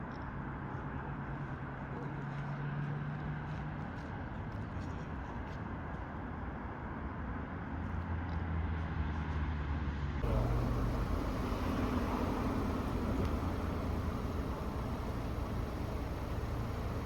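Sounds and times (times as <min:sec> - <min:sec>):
street noise: 0:00.0 - 0:17.0
vehicle engine humming: 0:10.2 - 0:17.0.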